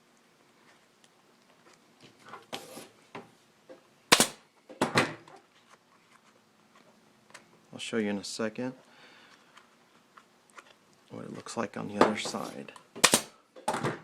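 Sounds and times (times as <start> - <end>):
staple gun firing: 4.1 - 4.4, 13.0 - 13.4.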